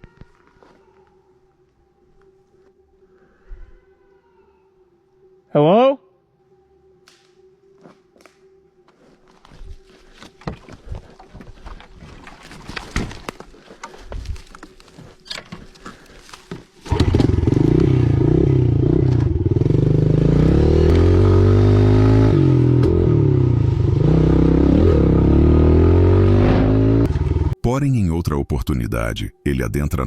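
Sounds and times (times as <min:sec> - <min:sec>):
crunching in leaves and twigs: 0:07.8 - 0:17.0
motorcycle engine revving: 0:16.8 - 0:27.6.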